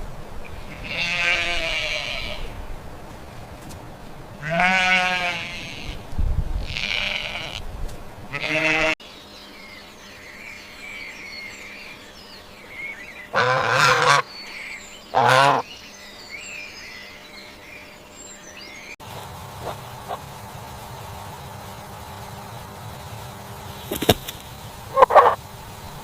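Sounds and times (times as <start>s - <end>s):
sheep bleating: 0.7s - 2.5s, 4.4s - 6.0s, 8.3s - 9.0s.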